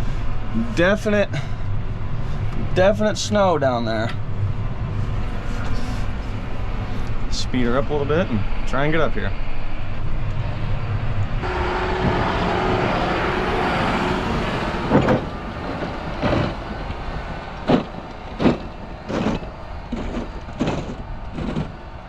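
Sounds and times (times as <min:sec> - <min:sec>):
tractor diesel engine under load: 0:10.2 - 0:22.0
sharp thumps: 0:11.5 - 0:21.8.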